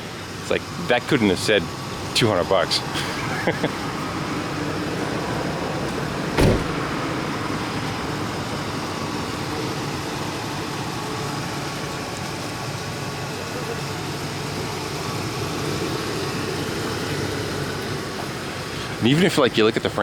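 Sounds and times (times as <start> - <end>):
vehicle noise: 0.0 - 19.9
heavy thump: 6.3 - 7.0.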